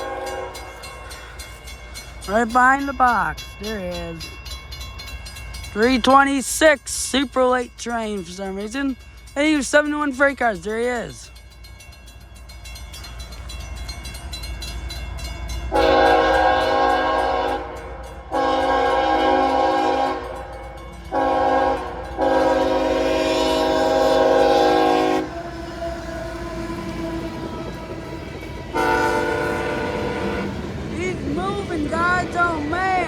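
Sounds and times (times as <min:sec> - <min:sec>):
locomotive air horn blasts: 0:00.0 - 0:00.8, 0:15.7 - 0:20.4, 0:21.1 - 0:28.0, 0:28.7 - 0:30.7
train rumbling: 0:00.0 - 0:33.0.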